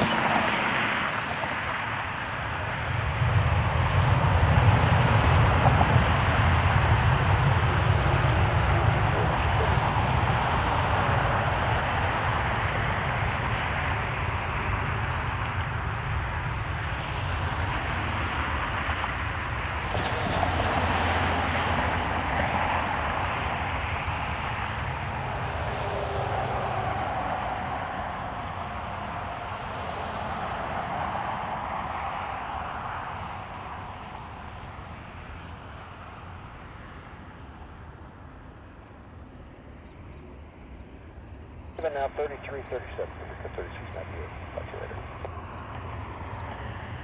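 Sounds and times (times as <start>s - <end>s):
wind buffeting microphone: 0.0s - 36.4s
jet engine noise: 0.0s - 47.0s.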